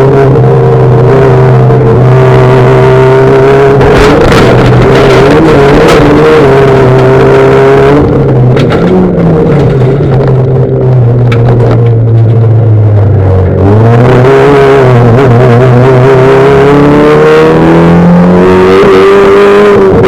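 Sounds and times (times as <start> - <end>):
race cars at full throttle: 0.0 - 20.0.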